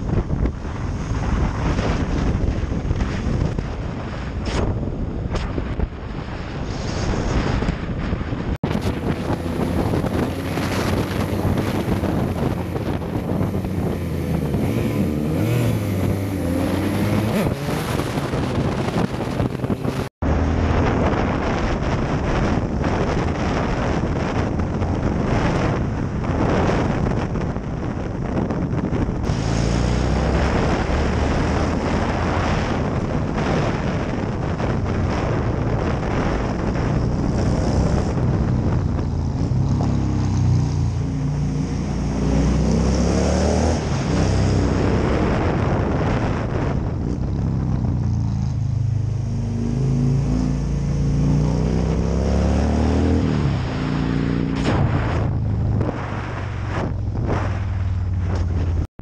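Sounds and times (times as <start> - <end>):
motorcycle engine accelerating: 0.0 - 58.9
wind buffeting microphone: 0.0 - 58.9.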